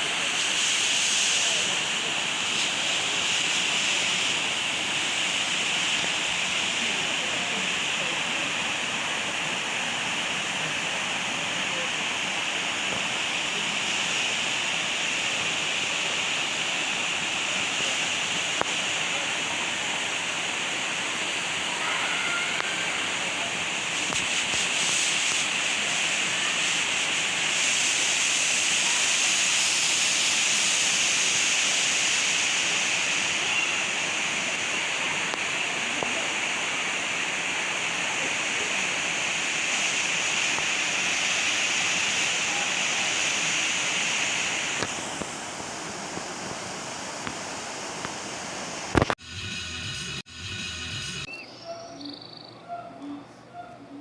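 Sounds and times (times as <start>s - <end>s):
falling water rushing: 0.0s - 49.2s
high-pitched drone: 49.2s - 51.8s.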